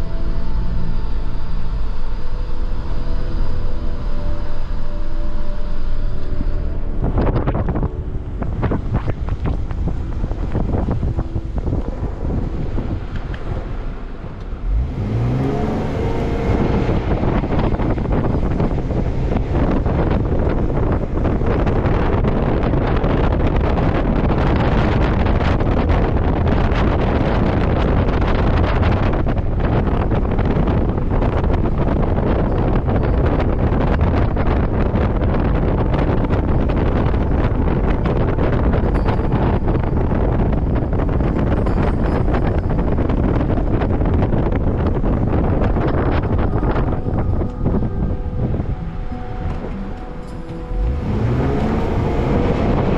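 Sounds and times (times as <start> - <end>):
car engine revving: 0.0 - 41.5, 43.2 - 52.9
vehicle rumble driving through snow: 0.0 - 52.9.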